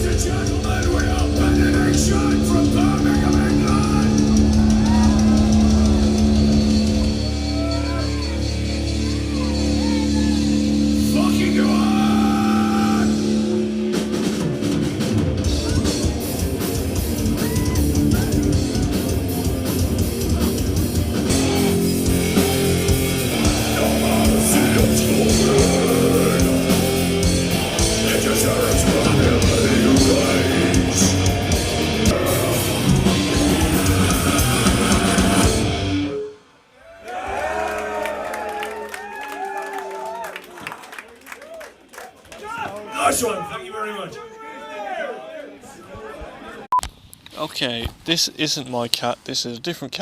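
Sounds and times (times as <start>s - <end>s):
drum kit: 0.0s - 36.1s
distorted electric guitars: 0.0s - 36.5s.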